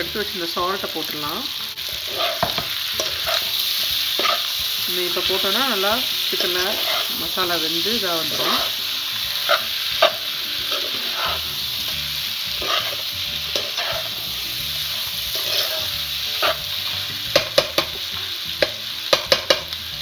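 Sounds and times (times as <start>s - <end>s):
chicken sizzling in a pan: 0.0s - 20.0s
spatula scraping a pan: 1.9s - 5.5s, 6.3s - 7.4s, 8.2s - 17.0s.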